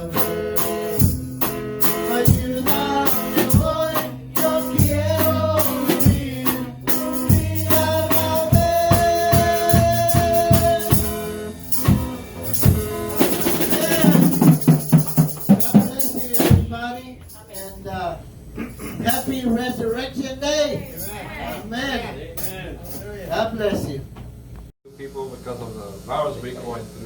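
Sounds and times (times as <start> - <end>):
drum kit: 0.0 - 17.8
tambourine: 0.0 - 17.9, 19.1 - 20.0, 22.4 - 23.2
worship music with singing: 1.8 - 17.1.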